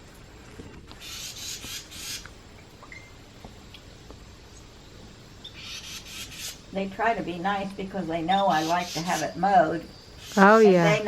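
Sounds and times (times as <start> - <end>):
nestlings raspy begging calls: 1.0 - 2.3, 5.4 - 6.7, 8.2 - 11.0.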